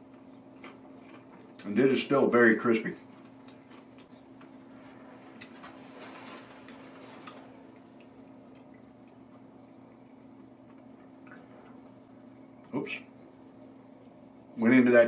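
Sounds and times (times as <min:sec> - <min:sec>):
crunchy chewing: 0:00.0 - 0:01.8, 0:02.9 - 0:12.0
steady low hum: 0:00.0 - 0:15.0.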